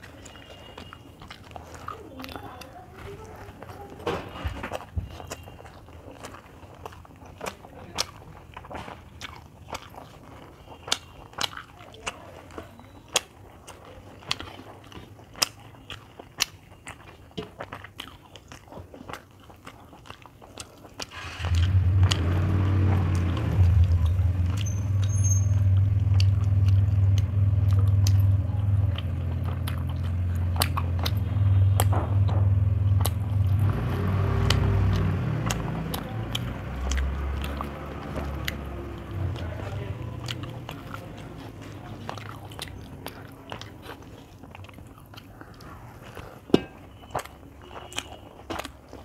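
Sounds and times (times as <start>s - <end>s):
chewing and mouth clicks: 0.0s - 49.0s
loud low rumble: 21.4s - 30.0s.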